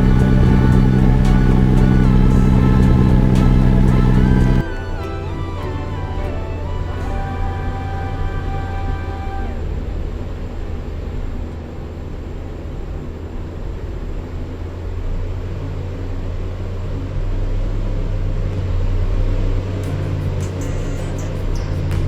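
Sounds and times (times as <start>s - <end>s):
ceiling fan humming: 0.0s - 14.8s.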